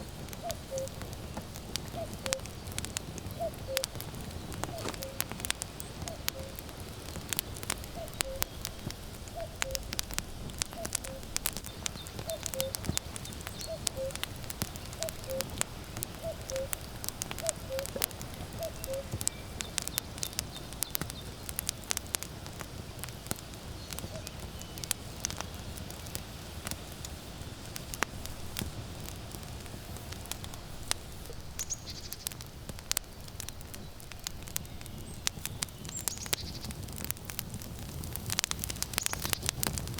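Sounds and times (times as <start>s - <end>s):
firewood crackling and popping: 0.0s - 39.9s
cuckoo calling: 0.4s - 1.0s, 1.9s - 2.6s, 3.3s - 6.6s, 7.8s - 9.9s, 10.6s - 20.0s.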